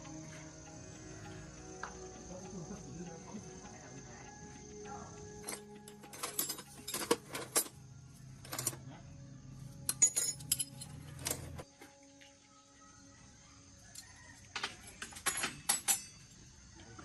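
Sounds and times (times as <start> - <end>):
metal tools clinking: 5.4 - 7.8, 8.4 - 8.8, 9.9 - 11.6, 15.0 - 16.3.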